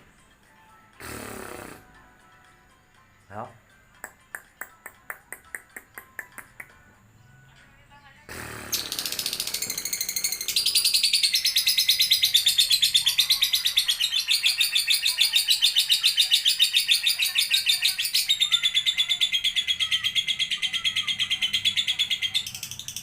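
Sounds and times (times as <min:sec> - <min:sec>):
lovebird chattering trill: 0:08.3 - 0:23.0.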